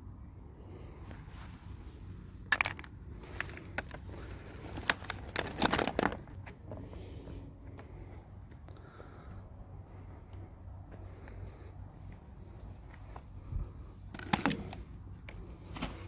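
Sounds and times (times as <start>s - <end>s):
low steady hum: 0.0s - 16.0s
plastic toy pieces clicking: 2.5s - 6.2s
packaging crinkling: 2.5s - 6.4s.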